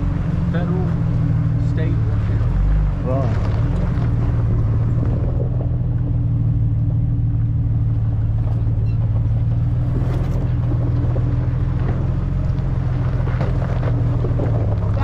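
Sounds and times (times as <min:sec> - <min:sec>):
road rumble: 0:00.0 - 0:15.0
vehicle engine running: 0:00.0 - 0:15.0.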